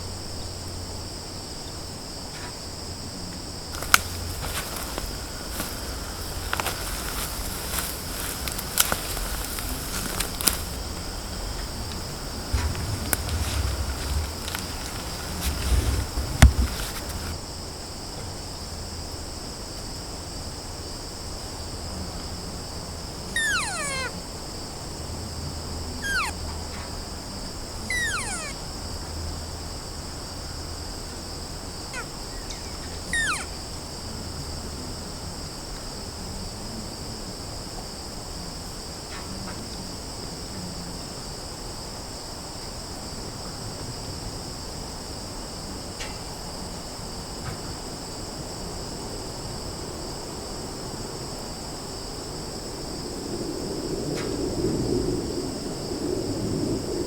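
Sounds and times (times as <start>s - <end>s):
crickets trilling: 0.0s - 57.0s
short calls falling in pitch: 23.4s - 24.1s, 26.0s - 26.4s, 27.8s - 28.6s, 33.1s - 33.6s.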